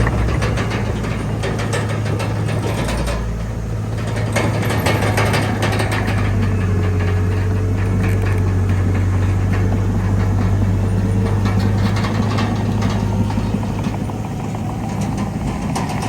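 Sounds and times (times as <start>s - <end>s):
bulldozer diesel engine running: 0.0s - 16.0s
metallic clanking and rattling: 0.0s - 16.0s.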